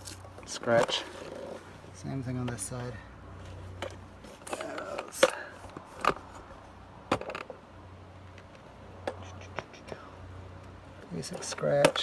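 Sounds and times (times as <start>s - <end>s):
sharp clicks and knocks: 11.0s - 12.0s.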